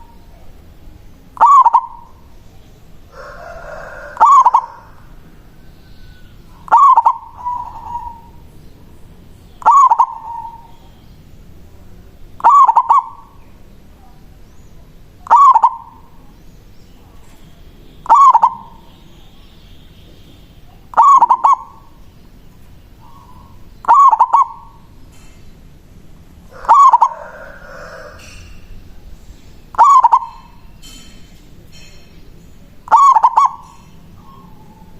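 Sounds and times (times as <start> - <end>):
dove cooing: 1.4 - 2.3, 3.1 - 8.5, 9.6 - 10.9, 12.4 - 13.4, 15.2 - 16.3, 18.0 - 18.9, 20.7 - 22.0, 23.0 - 25.0, 26.4 - 28.9, 29.7 - 30.7, 32.8 - 34.9.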